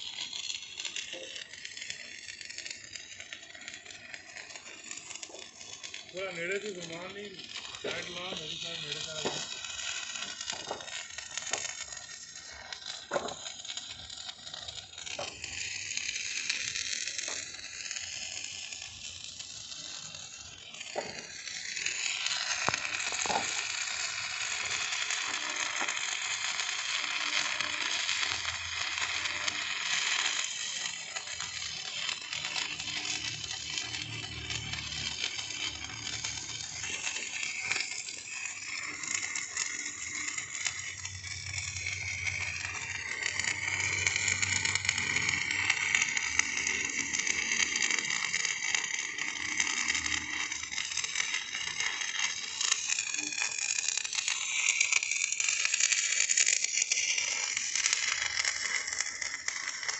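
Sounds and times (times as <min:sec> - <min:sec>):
arc welding crackling: 0:00.0 - 0:59.9.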